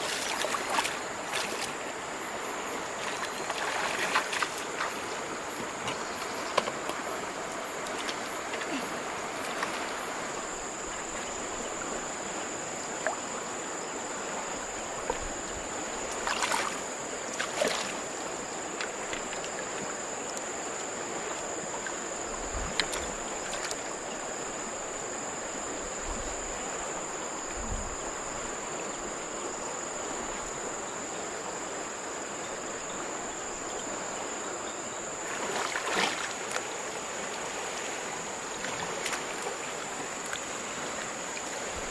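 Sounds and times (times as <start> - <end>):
water splashes: 0.0 - 12.4, 14.2 - 23.9, 35.2 - 41.9
high insect drone: 0.0 - 41.9
river water running: 0.0 - 41.9.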